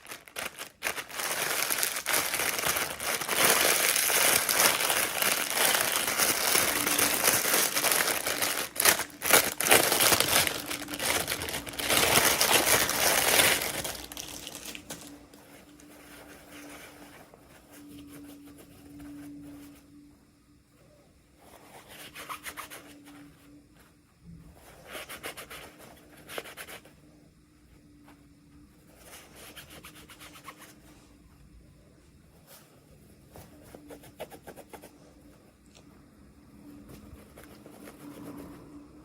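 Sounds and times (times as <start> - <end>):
hands rubbing packaging: 0.0 - 19.6, 36.8 - 38.9
faint steady hum: 0.0 - 39.0.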